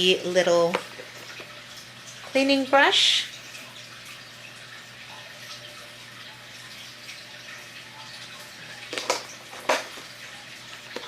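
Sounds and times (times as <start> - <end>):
plastic items clicking and knocking: 8.9 - 10.1.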